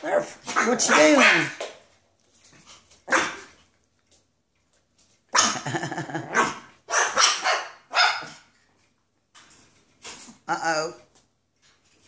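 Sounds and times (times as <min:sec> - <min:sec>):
dogs barking and growling: 0:00.0 - 0:01.8, 0:02.6 - 0:03.8, 0:05.3 - 0:08.9.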